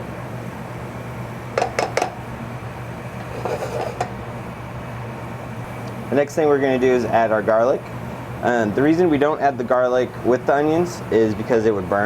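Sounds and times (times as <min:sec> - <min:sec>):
steady low hum: 0:00.0 - 0:12.0
utensil clinking against pot: 0:01.6 - 0:02.2, 0:03.2 - 0:04.2.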